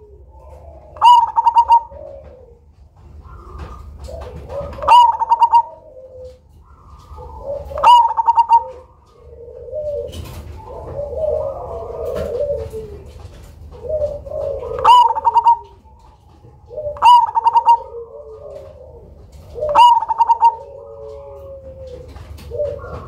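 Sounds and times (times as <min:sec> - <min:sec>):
dove singing song phrases: 0:00.0 - 0:23.0
soft low cooing: 0:16.6 - 0:23.0.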